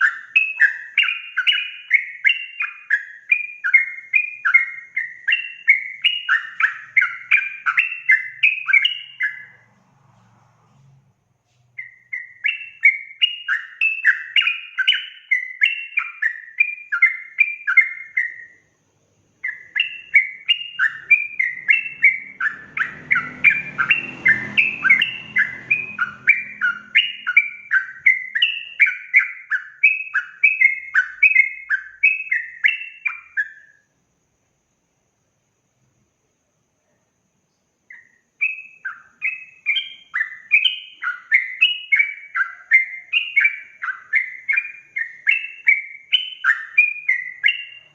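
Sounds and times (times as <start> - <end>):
faint low rumble: 9.0 - 12.1
bird singing bubbly notes: 19.4 - 33.8.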